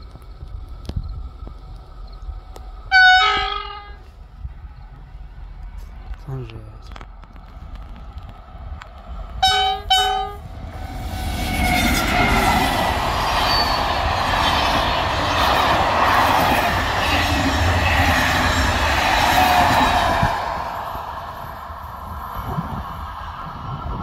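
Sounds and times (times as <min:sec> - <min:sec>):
train wheels rushing on rails: 0:00.0 - 0:24.0
train horn blasts: 0:02.9 - 0:04.1, 0:09.4 - 0:10.5.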